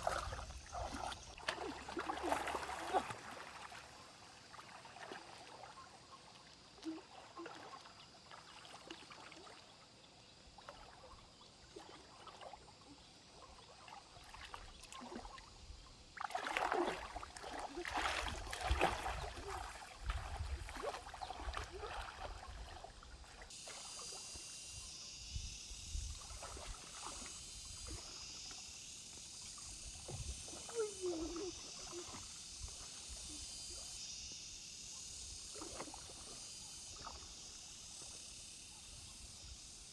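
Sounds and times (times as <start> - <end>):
water splashing in a stream: 0.0 - 39.9
steady high hiss: 23.5 - 39.9.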